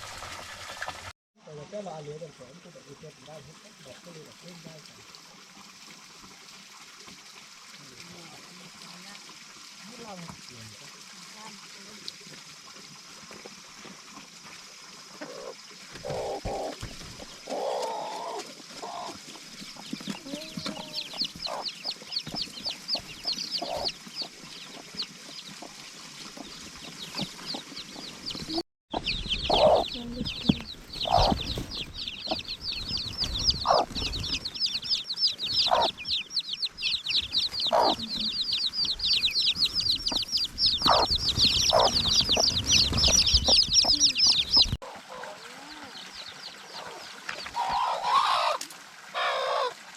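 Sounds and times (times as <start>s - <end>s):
chickens clucking: 15.1s - 49.7s
chicks peeping: 15.2s - 48.6s.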